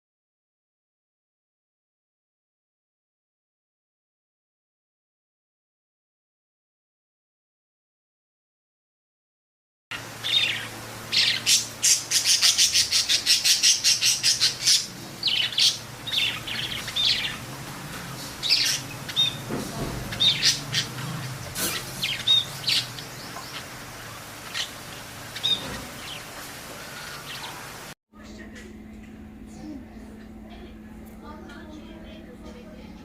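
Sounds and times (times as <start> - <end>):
parrots chirping and squawking: 10.0 - 27.9.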